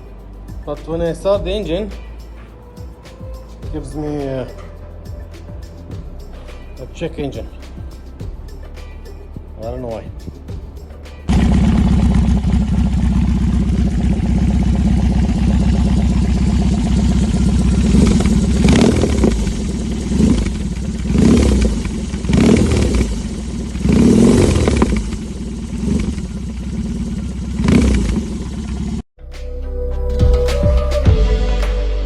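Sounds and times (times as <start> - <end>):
motorcycle engine idling and revving: 0.0 - 29.1.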